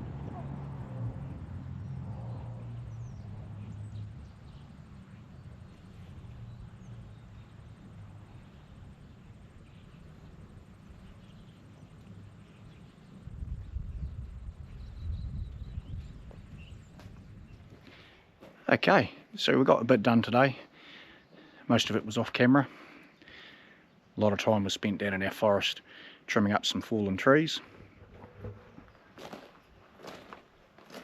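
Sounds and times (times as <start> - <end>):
low rumble on microphone: 0.0 - 17.9.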